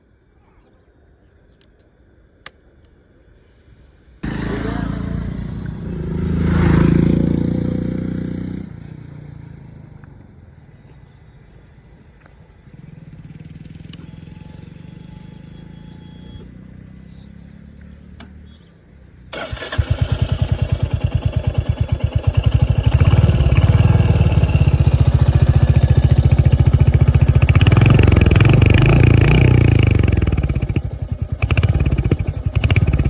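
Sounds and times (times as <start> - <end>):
motorcycle engine revving and idling: 4.2 - 10.4, 12.6 - 18.7, 19.3 - 33.0.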